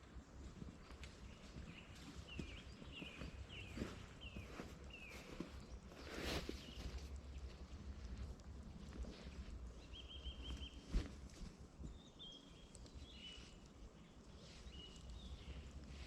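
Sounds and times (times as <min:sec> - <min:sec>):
small bird chirping: 0:09.7 - 0:11.1, 0:11.8 - 0:16.0.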